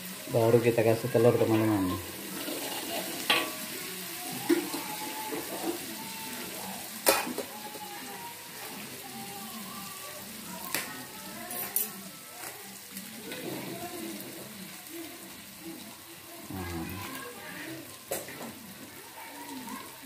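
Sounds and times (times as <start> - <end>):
paste sizzling in hot oil: 0.0 - 20.0
metal spatula scraping a wok: 1.4 - 3.8.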